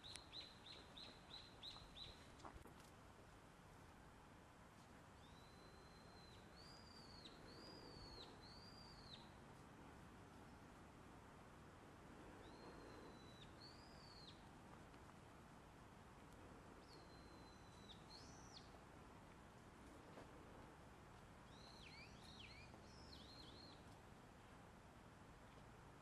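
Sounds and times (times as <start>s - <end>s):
small bird whistling: 5.2s - 9.3s, 12.4s - 14.4s, 21.5s - 23.8s.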